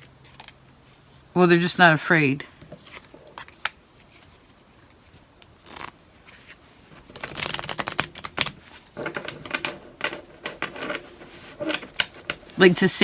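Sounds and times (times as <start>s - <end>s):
soft handling of cards: 2.6s - 12.8s
cards shuffling clicks: 7.0s - 12.8s.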